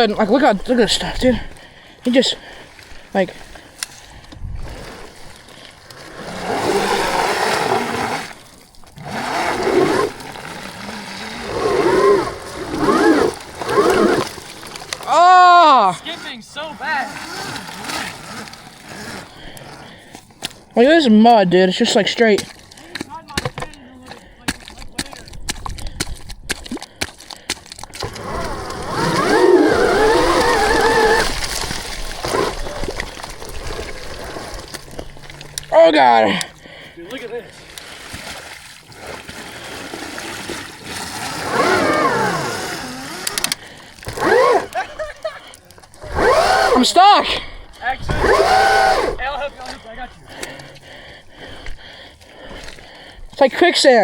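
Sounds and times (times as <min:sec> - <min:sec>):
wet mud splattering: 0:03.6 - 0:15.9, 0:22.2 - 0:35.7, 0:36.4 - 0:46.7
electric dirt bike motor whining: 0:06.1 - 0:14.4, 0:15.0 - 0:19.9, 0:28.0 - 0:33.5, 0:41.1 - 0:44.8, 0:46.0 - 0:47.2, 0:48.0 - 0:49.3.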